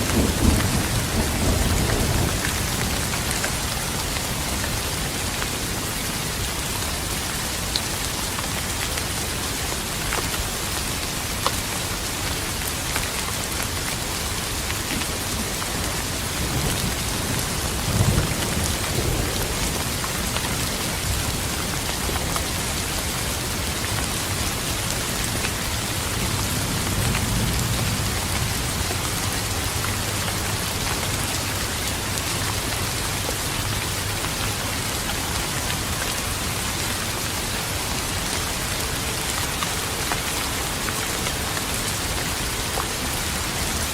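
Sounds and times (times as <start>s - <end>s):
thunder rumbling: 0.0s - 5.0s
steady rain falling: 0.0s - 43.9s.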